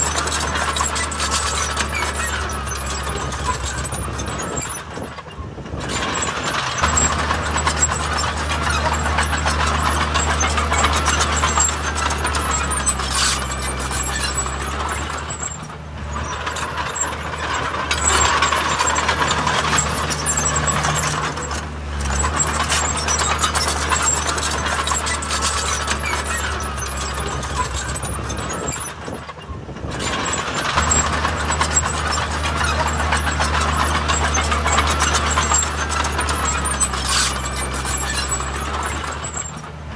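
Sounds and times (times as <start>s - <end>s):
heavy diesel machinery engine drone: 0.0s - 39.9s.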